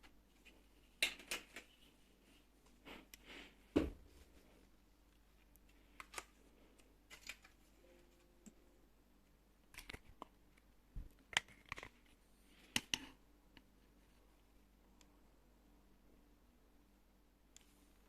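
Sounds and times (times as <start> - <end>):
plastic parts clicking and rattling: 5.9 - 7.7, 9.7 - 10.3, 11.2 - 12.1.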